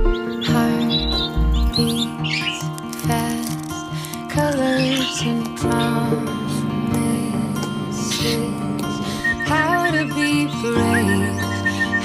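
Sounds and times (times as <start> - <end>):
background music with low beat: 0.0 - 2.0.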